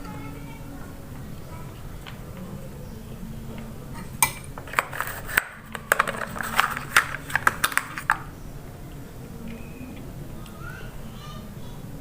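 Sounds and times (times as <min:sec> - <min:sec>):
cutlery clinking on a plate: 0:03.9 - 0:08.2.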